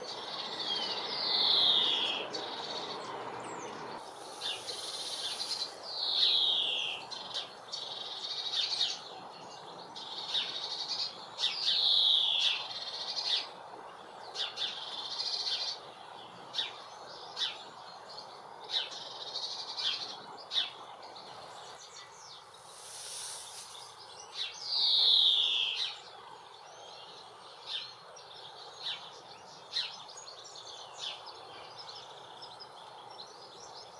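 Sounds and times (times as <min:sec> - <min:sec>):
bird buzzy wheezes: 0:04.1 - 0:05.8.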